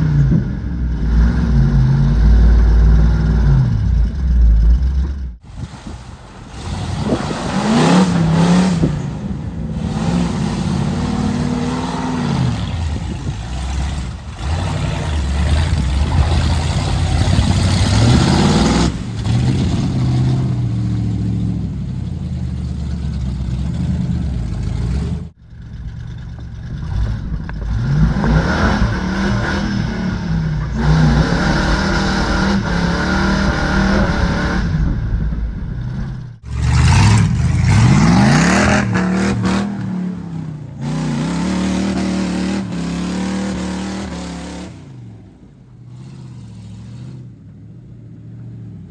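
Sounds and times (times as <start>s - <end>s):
truck engine revving: 0.0s - 48.8s.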